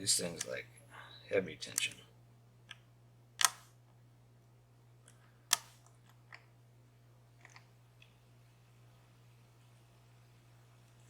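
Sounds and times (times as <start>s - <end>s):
lock pick clicking: 3.4s - 3.6s.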